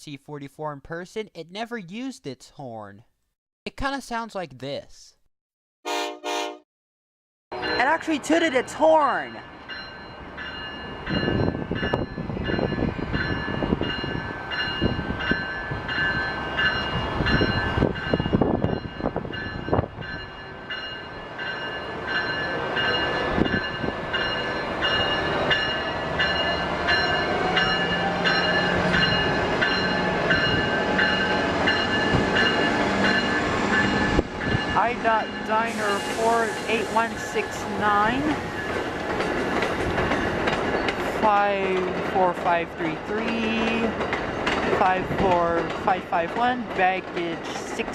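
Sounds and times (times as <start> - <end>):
train bell ringing: 7.5 - 47.8
diesel locomotive engine: 7.5 - 47.9.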